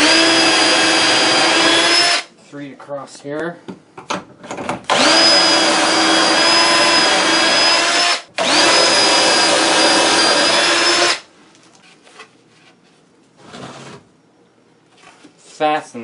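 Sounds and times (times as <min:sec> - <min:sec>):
power drill driving screws: 0:00.0 - 0:02.3, 0:04.9 - 0:11.3.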